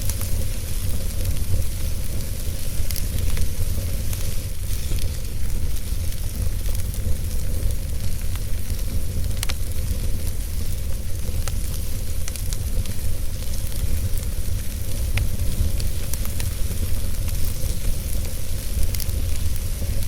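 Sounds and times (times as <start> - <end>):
fire crackles and pops: 0.0 - 20.0
wood fire burning: 0.0 - 20.0.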